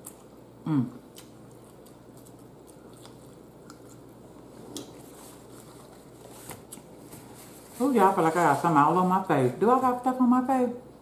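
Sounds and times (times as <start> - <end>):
person chewing food: 0.0 - 7.4.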